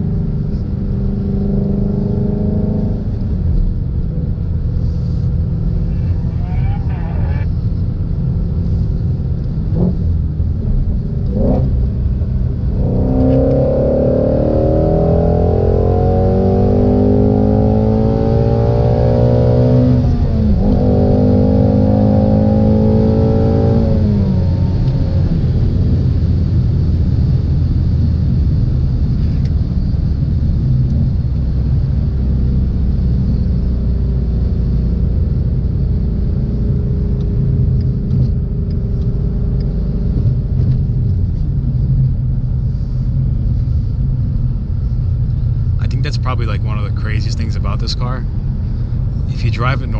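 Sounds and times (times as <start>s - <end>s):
car engine accelerating hard: 0.0s - 49.9s
engine rumble while cruising: 0.0s - 49.9s.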